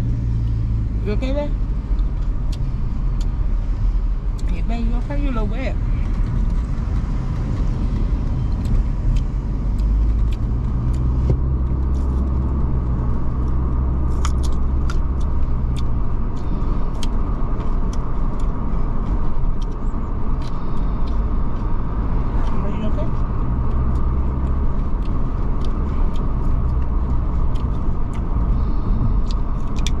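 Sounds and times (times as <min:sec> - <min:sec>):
road and engine rumble: 0:00.0 - 0:30.0.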